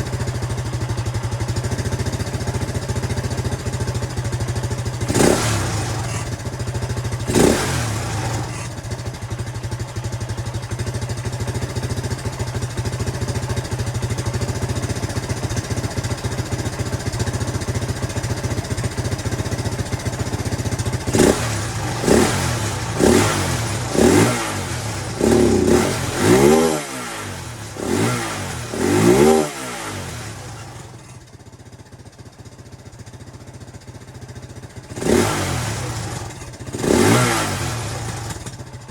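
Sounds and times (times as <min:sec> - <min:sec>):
dirt bike engine idling: 0:00.0 - 0:38.9
dirt bike engine revving: 0:05.0 - 0:06.4, 0:07.2 - 0:08.8, 0:21.0 - 0:31.1, 0:34.9 - 0:38.5.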